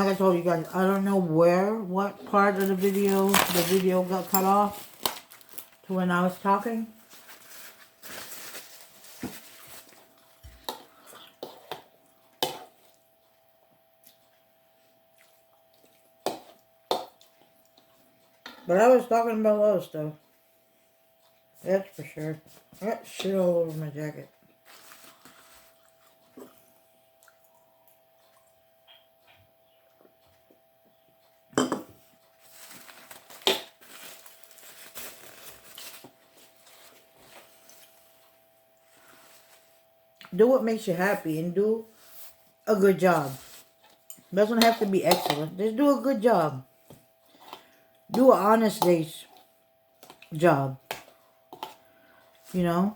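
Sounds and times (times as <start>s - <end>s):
faint steady hum: 0.0s - 52.9s
rustling: 6.9s - 10.1s, 32.4s - 38.0s.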